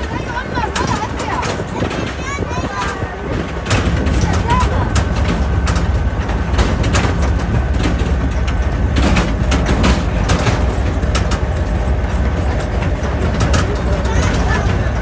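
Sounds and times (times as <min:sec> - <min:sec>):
short rattles and knocks: 0:00.0 - 0:15.0
tractor engine droning: 0:00.0 - 0:15.0.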